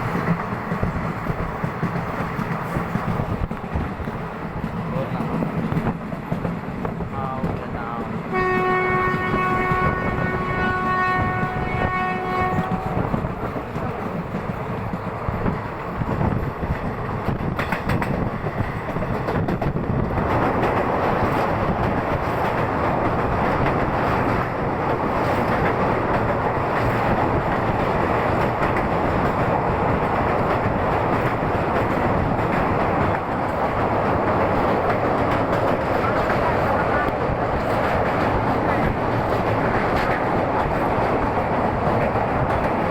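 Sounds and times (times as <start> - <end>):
train rumbling on rails: 0.0 - 42.9
train horn: 8.3 - 13.2.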